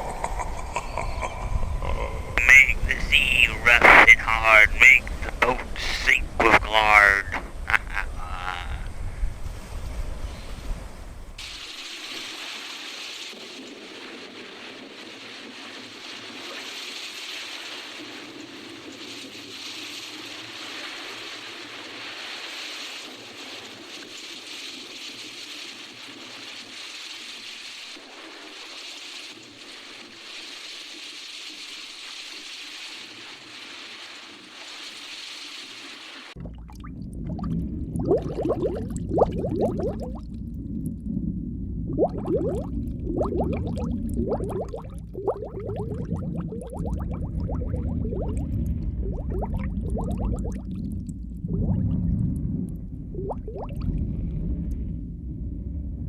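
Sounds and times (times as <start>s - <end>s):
low water bubbling: 36.4s - 56.0s.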